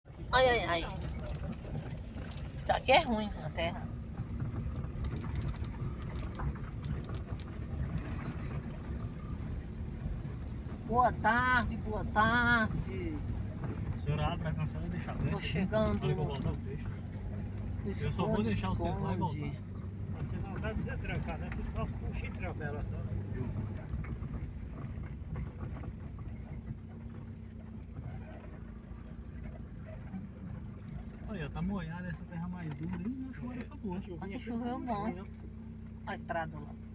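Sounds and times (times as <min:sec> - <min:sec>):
vehicle rumbling on dirt road: 0:00.0 - 0:36.9
small knocks and rattles: 0:04.1 - 0:09.6.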